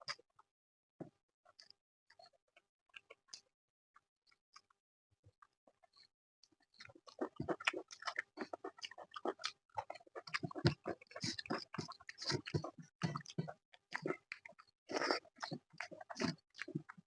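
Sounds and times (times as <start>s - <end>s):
wet chewing and lip-smacking: 5.8s - 17.0s.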